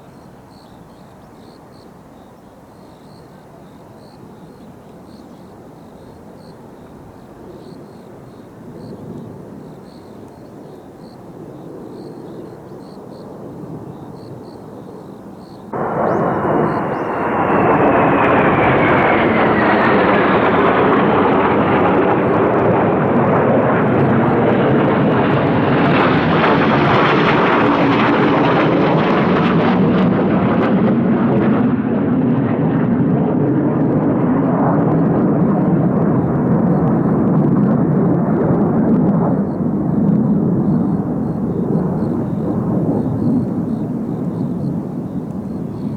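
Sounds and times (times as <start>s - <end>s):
jets flying past with whine: 15.7s - 45.9s.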